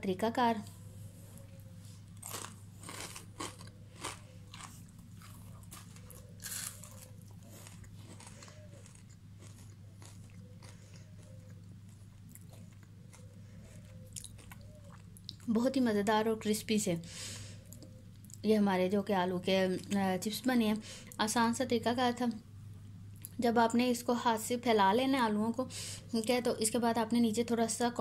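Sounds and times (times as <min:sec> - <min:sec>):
low steady hum: 0:00.0 - 0:28.0
crunchy food being chewed: 0:01.2 - 0:15.5.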